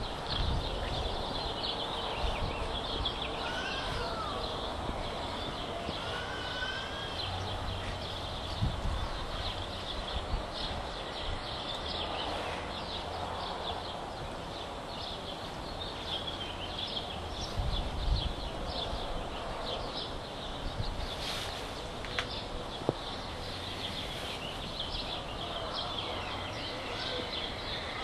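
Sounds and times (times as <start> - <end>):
outdoor background noise: 0.0 - 28.0
small birds chirping: 0.0 - 28.0.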